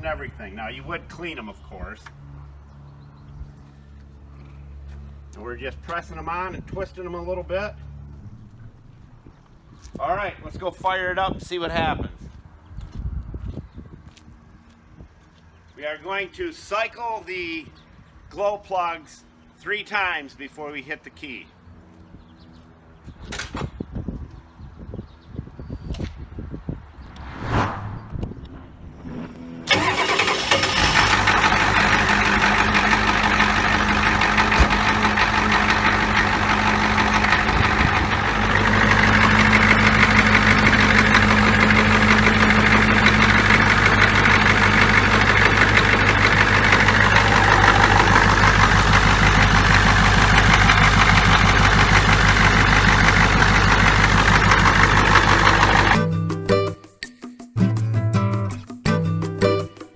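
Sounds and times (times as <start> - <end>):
diesel engine cranking: 28.4 - 56.0
diesel engine idling: 29.6 - 56.0.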